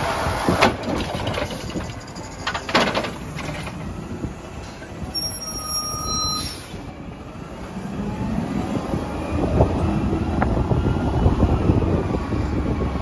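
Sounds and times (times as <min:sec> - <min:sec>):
high beep: 0:05.1 - 0:06.5.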